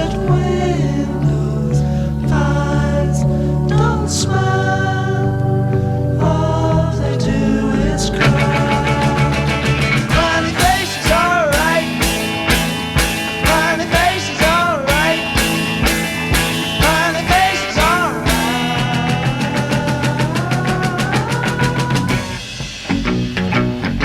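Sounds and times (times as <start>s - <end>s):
steady drum beat: 8.2s - 24.0s
swooping bending lead notes: 8.2s - 24.0s.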